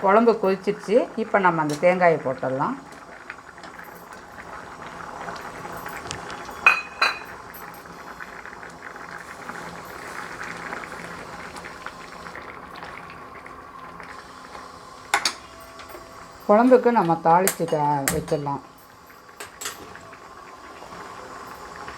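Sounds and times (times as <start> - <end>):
curry bubbling in a pot: 2.3 - 15.6.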